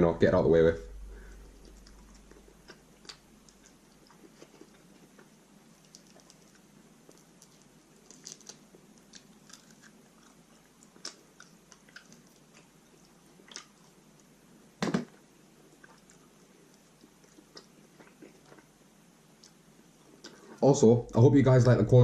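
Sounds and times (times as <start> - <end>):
chewing chicken wing: 1.5 - 14.4.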